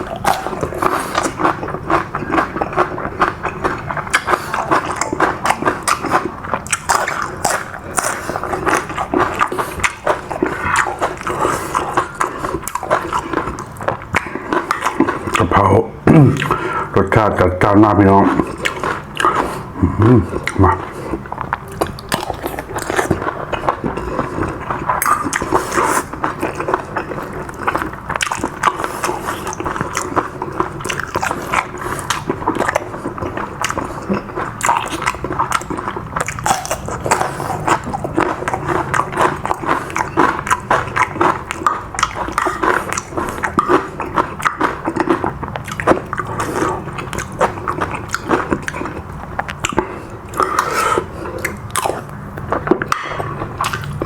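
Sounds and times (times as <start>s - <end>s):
person chewing food: 0.0s - 54.0s
mouth clicks and smacks: 18.3s - 24.0s, 24.8s - 54.0s.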